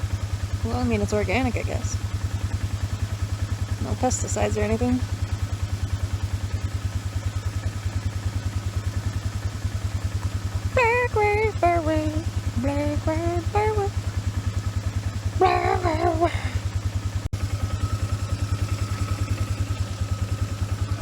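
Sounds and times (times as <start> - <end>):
atv engine pulsing: 0.0 - 21.0
woman calling out: 3.8 - 5.0, 15.4 - 16.7.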